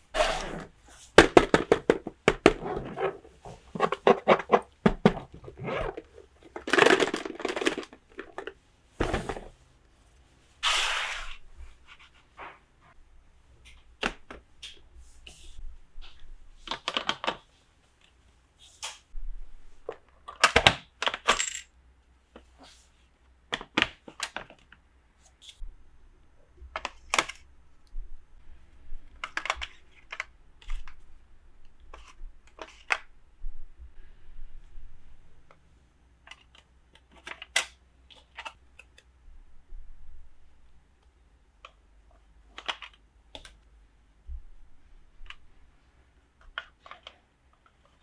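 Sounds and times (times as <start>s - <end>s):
plastic clatter: 1.2s - 9.5s.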